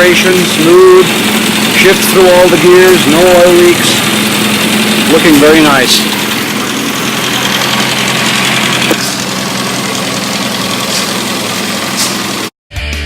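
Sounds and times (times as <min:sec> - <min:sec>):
engine running steadily: 0:00.0 - 0:12.5.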